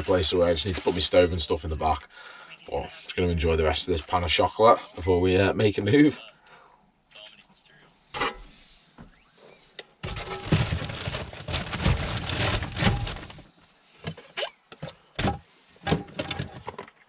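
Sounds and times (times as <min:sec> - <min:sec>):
gear rustling and scraping: 0:00.0 - 0:01.3, 0:10.0 - 0:13.5.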